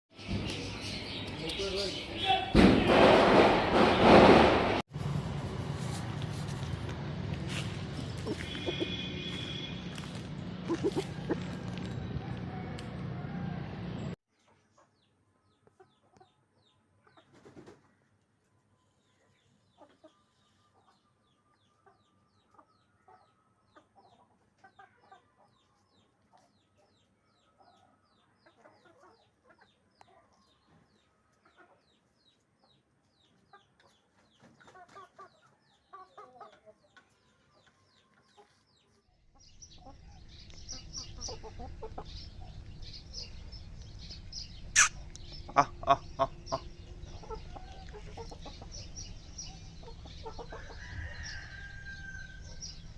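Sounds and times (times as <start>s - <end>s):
chickens clucking: 8.0s - 9.4s, 10.1s - 13.5s, 14.4s - 51.8s.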